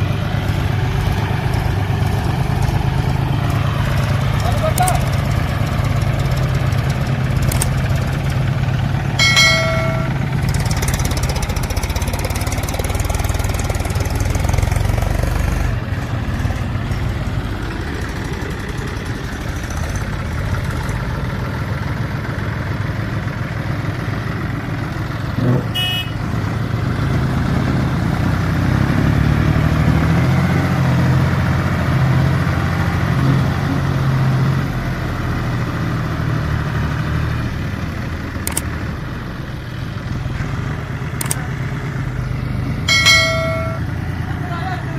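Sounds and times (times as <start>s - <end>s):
heavy diesel engine running: 0.0s - 44.9s
short horn beep: 25.8s - 26.2s.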